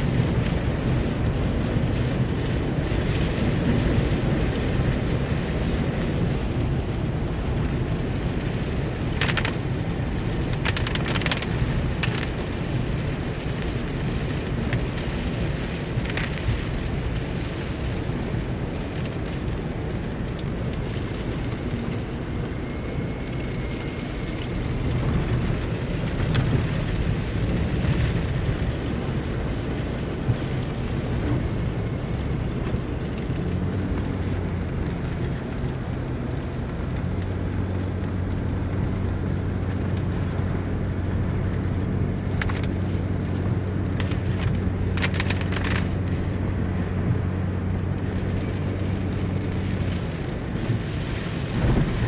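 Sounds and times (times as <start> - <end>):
rain on a car: 0.0 - 52.0
tyre and road noise: 0.0 - 52.0.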